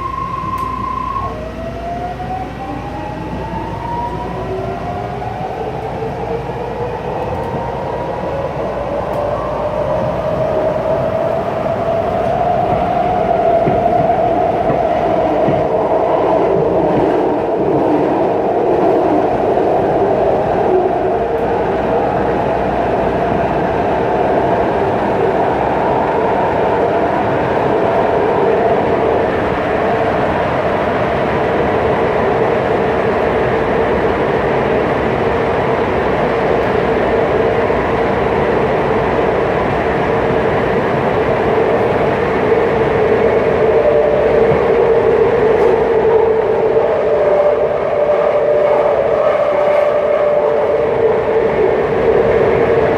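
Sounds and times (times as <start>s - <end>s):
train running rumble with whine: 0.0s - 52.9s.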